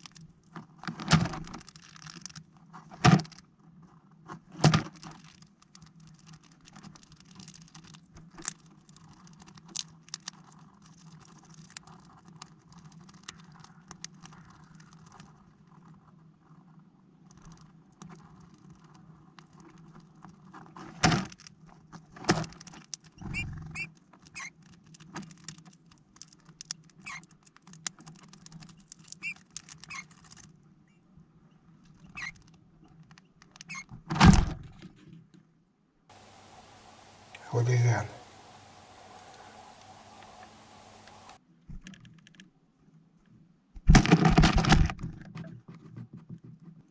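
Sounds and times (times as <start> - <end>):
birds tapping on plastic feeder: 36.1 - 41.4.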